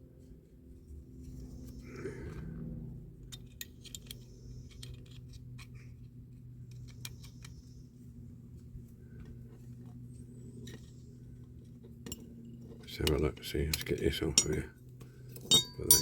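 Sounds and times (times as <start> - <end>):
steady low hum: 0.0 - 16.0
metal parts clicking and clinking: 3.3 - 6.1, 12.0 - 14.7, 15.3 - 16.0.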